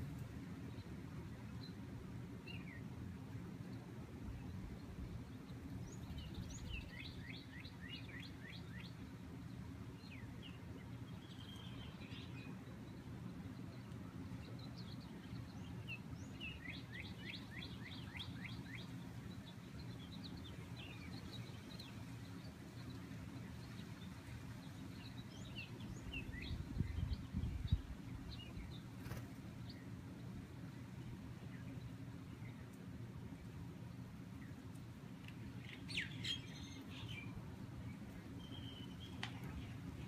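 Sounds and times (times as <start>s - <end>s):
bird chirps: 10.1s - 12.7s, 35.6s - 37.4s, 38.0s - 39.8s.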